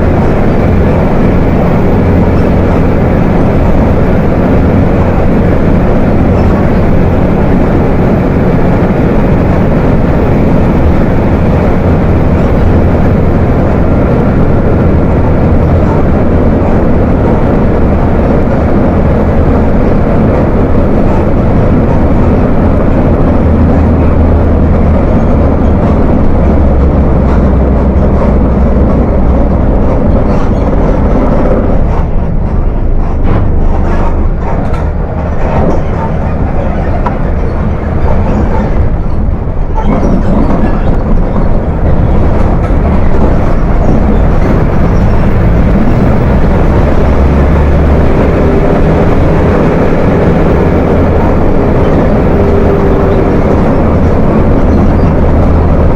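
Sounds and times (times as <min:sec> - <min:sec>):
bus diesel engine rumbling: 0:00.0 - 0:55.9.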